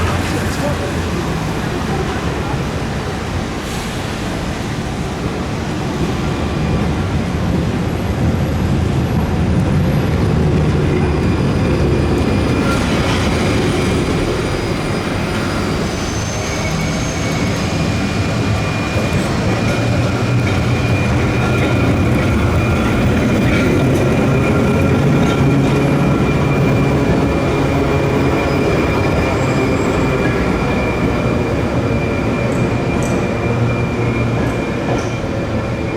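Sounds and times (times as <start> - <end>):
tram rumbling on rails: 0.0 - 35.9
wheels squealing on track: 11.0 - 34.9.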